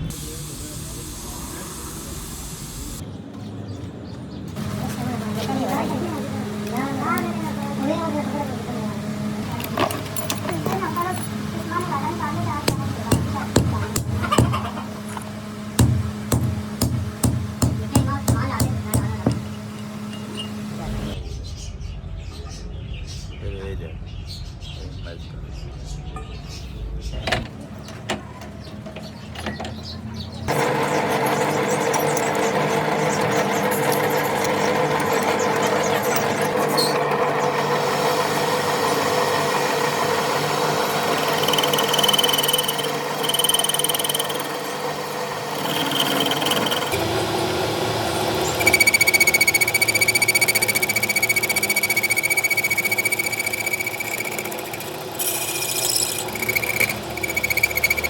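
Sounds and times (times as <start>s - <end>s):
machine working metal: 4.6s - 21.2s, 27.2s - 58.0s
high metal on metal squeal: 48.2s - 58.0s.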